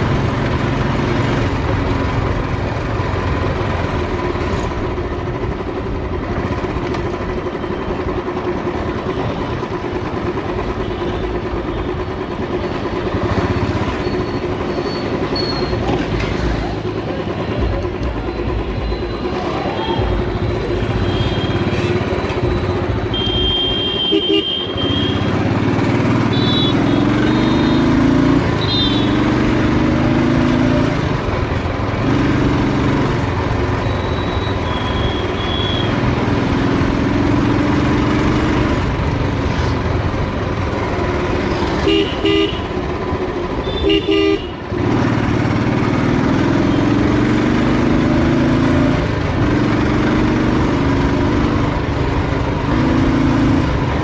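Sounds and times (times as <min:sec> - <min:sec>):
motorcycle engine revving: 0:00.0 - 0:54.0
road and wind noise: 0:00.0 - 0:54.0
vehicle horns honking: 0:19.8 - 0:25.4, 0:26.2 - 0:28.0, 0:28.6 - 0:29.3, 0:33.8 - 0:36.0, 0:41.7 - 0:42.8, 0:43.6 - 0:44.6.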